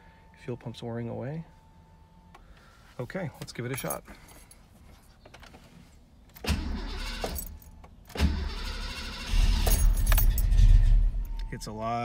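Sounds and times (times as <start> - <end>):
engine running with steady rumble: 6.3 - 12.0
starter cranking engine: 8.2 - 10.6.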